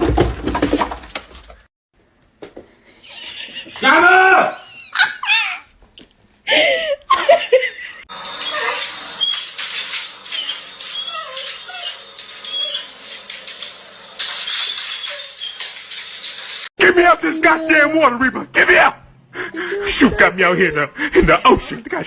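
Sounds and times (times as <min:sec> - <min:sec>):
pet animal cries: 0:05.0 - 0:05.7
high squeaks and chirps: 0:08.4 - 0:13.2, 0:14.2 - 0:16.7.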